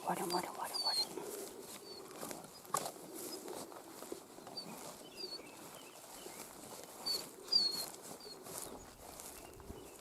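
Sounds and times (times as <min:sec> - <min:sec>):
faint bird chirps: 0:04.4 - 0:10.0.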